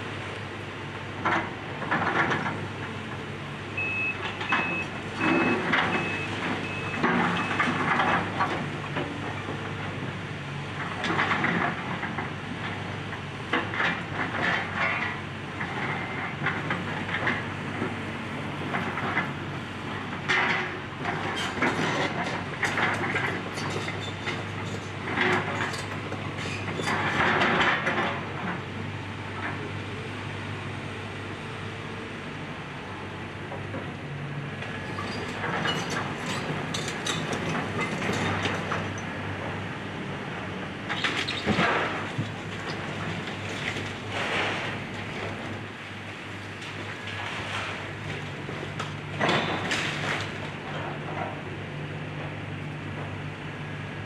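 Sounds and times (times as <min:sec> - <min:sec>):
backup alarm beeping: 0:03.8 - 0:07.0
debris crunching and clattering: 0:49.2 - 0:50.5.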